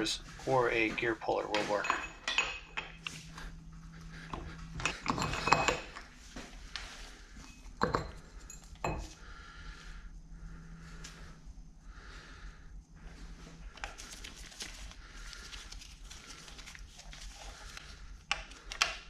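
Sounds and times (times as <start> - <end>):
steel tools clanking on metal: 1.3 - 3.1, 4.8 - 6.0.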